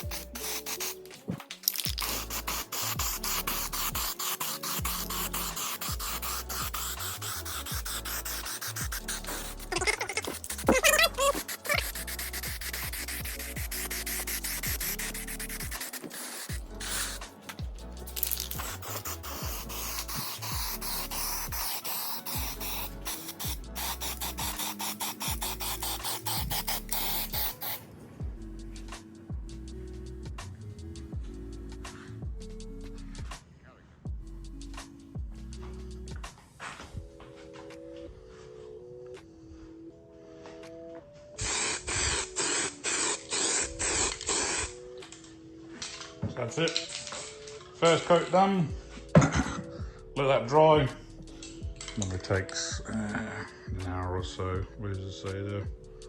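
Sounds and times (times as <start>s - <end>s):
aerosol spray can hissing: 0.0s - 27.8s, 41.4s - 44.8s
background music with beat: 0.0s - 56.0s.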